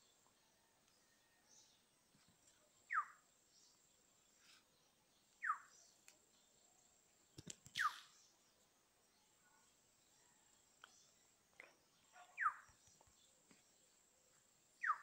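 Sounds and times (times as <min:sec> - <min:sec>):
bird chirping downward: 0:07.7 - 0:08.3.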